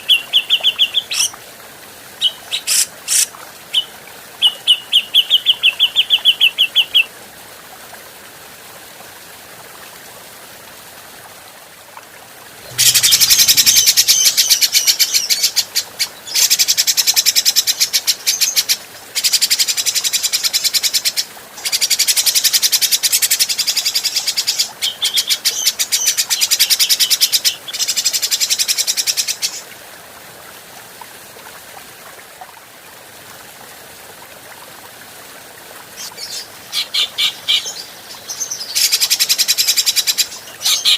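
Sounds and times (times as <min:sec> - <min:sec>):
bird harsh chattering calls: 0:02.2 - 0:03.3, 0:12.7 - 0:15.5.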